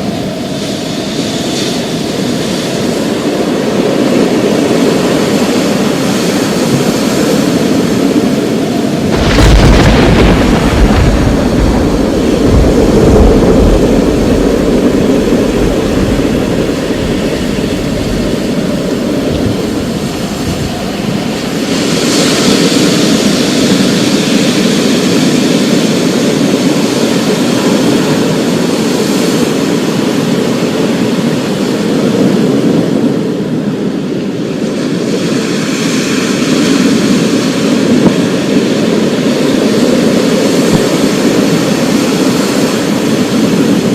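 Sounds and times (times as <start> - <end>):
rain: 1.0 - 33.9
thunderclap with deep rumble: 6.4 - 30.3
distant thunder: 9.0 - 21.8.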